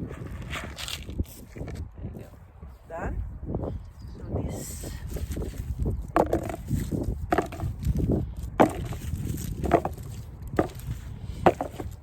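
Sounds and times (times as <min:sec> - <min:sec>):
wind buffeting microphone: 0:00.0 - 0:12.0
sharp knocks: 0:08.6 - 0:09.0.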